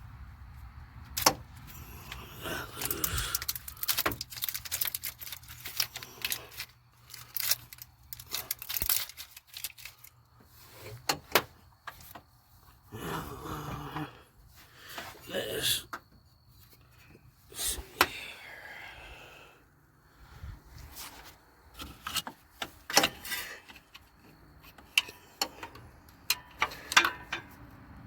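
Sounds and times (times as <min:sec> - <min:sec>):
metal tools and parts clinking: 0:01.2 - 0:10.2, 0:21.8 - 0:27.6.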